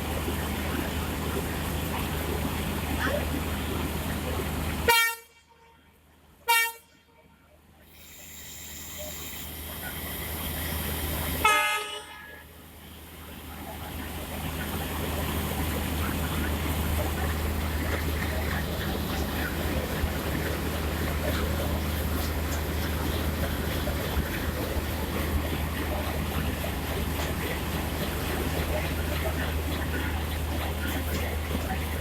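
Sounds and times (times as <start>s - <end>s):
low locomotive rumble: 0.0s - 32.0s
locomotive horn toots: 4.9s - 5.8s, 6.5s - 7.2s, 11.4s - 12.4s.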